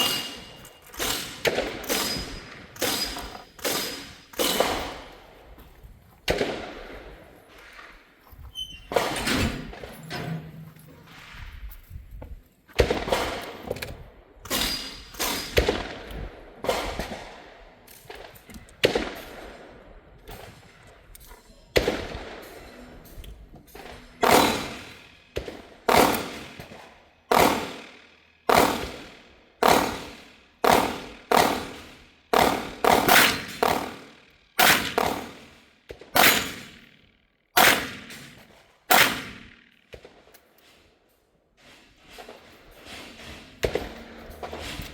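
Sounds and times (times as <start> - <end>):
gunshots: 0.0 - 5.3, 6.2 - 8.0, 12.8 - 13.8, 14.5 - 20.6, 21.8 - 22.7, 23.8 - 37.0, 37.6 - 40.3, 42.9 - 44.9.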